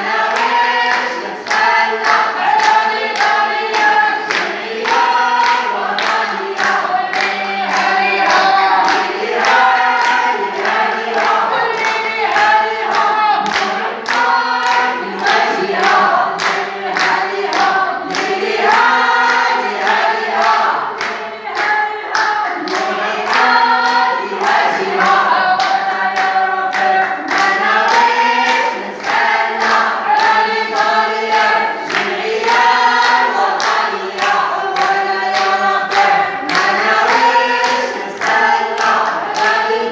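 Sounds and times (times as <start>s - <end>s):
crowd chanting: 0.0s - 39.9s
hand claps: 0.0s - 39.9s.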